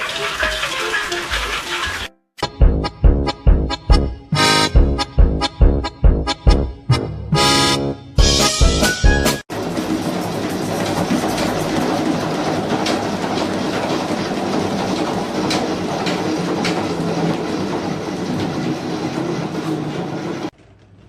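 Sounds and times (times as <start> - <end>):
mechanical rumble with clattering: 9.5 - 21.0.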